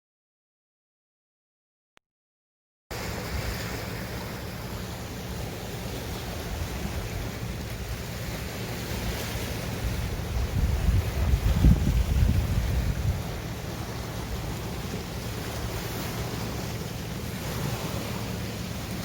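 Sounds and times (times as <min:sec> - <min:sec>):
sea waves on shore: 0:02.9 - 0:19.0
wind buffeting microphone: 0:09.6 - 0:16.7.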